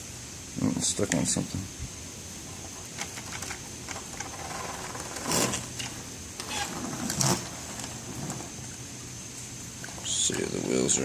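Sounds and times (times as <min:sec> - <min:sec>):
model train motor whirring: 0:03.3 - 0:08.6.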